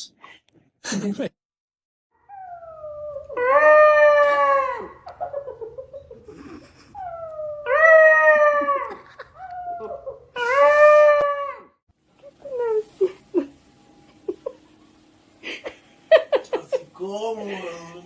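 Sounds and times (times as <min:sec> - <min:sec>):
dog howling: 0:02.2 - 0:05.0, 0:07.0 - 0:13.0
dog whining: 0:02.2 - 0:05.0, 0:06.2 - 0:13.2.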